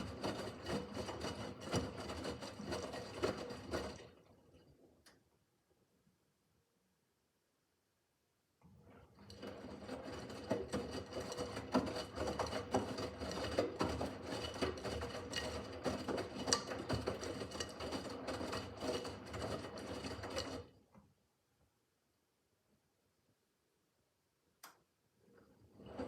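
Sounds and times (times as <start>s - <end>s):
washing machine motor hum: 0.0s - 5.1s, 8.7s - 21.0s, 25.2s - 26.0s.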